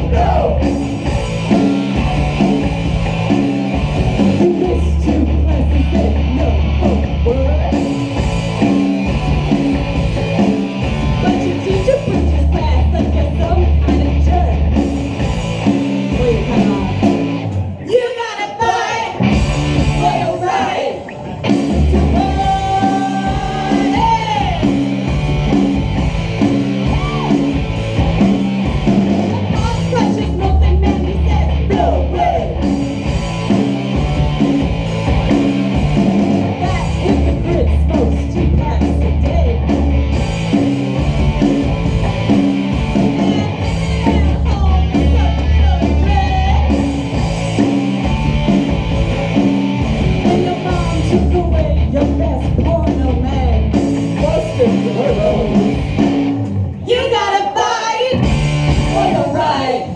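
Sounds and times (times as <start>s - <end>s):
sung and shouted vocals: 0.0s - 0.9s, 17.8s - 24.8s, 29.4s - 32.7s, 43.0s - 46.9s, 56.8s - 59.9s
live rock band playing: 0.0s - 59.9s.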